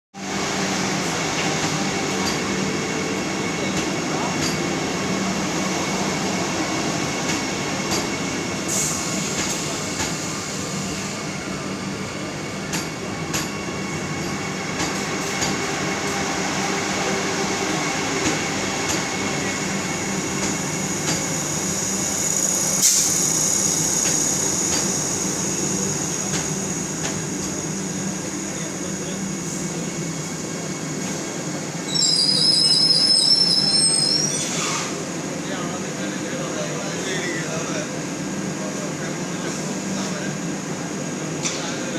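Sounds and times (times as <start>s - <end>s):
train rumbling on track: 0.2s - 41.9s
rail clicks: 14.8s - 15.7s, 23.9s - 25.0s, 26.2s - 27.7s
high wheel squeal: 31.9s - 34.9s.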